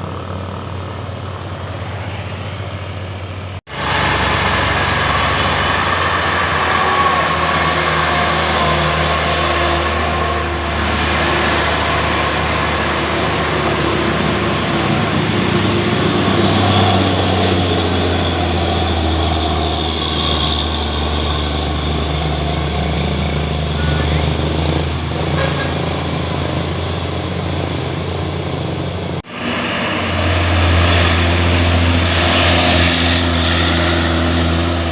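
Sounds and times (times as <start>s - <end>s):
truck diesel engine droning: 0.0s - 34.9s.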